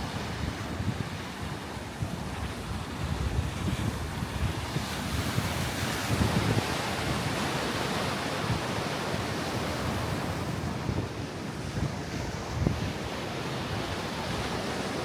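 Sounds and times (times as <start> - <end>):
sea surf washing on shore: 0.0 - 15.0
wind buffeting microphone: 0.0 - 15.0.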